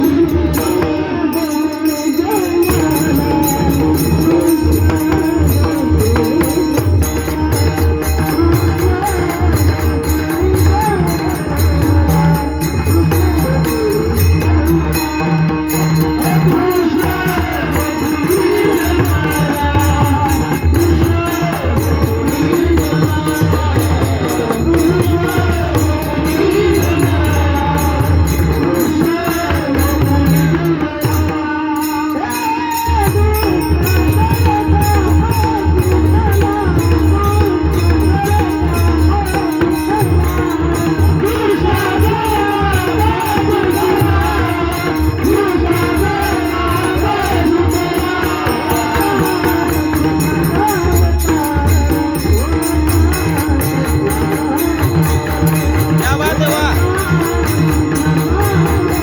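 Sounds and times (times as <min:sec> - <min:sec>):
jingling percussion: 0:00.0 - 0:59.0
person singing: 0:00.0 - 0:59.0
drum beat: 0:48.8 - 0:59.0.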